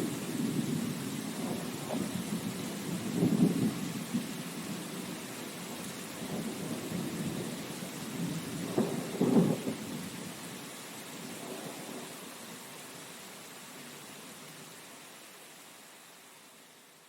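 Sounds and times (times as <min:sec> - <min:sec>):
thunder rumbling: 0:00.0 - 0:05.1, 0:05.7 - 0:10.2
steady rain hiss: 0:00.0 - 0:17.0.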